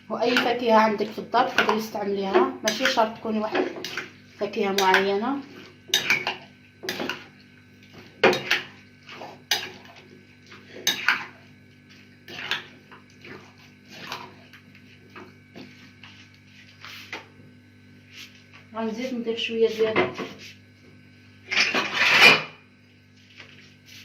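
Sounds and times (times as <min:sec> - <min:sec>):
spoon scraping a mixing bowl: 0:01.4 - 0:07.4, 0:08.0 - 0:17.2.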